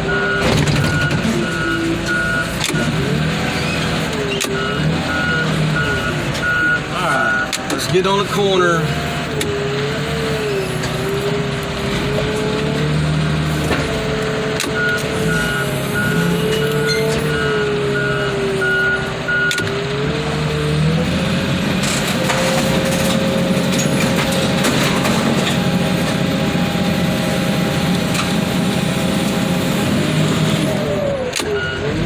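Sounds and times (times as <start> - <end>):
heavy equipment engine: 0.0 - 32.0
backup alarm beeping: 4.4 - 8.4, 14.7 - 19.7.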